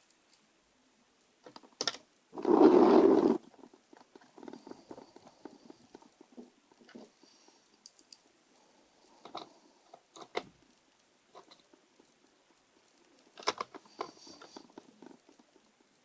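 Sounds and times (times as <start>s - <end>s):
loud rough scraping noise: 2.4s - 3.4s.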